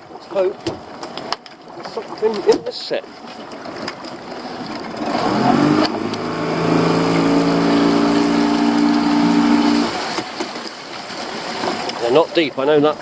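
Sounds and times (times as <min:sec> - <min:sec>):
outboard motor throttling up: 0:03.7 - 0:10.7.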